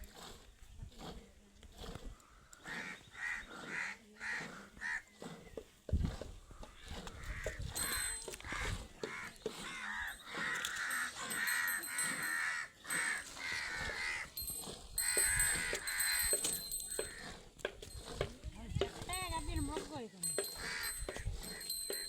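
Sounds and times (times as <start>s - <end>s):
birds calling: 2.2s - 5.8s, 6.5s - 17.7s, 19.5s - 22.0s.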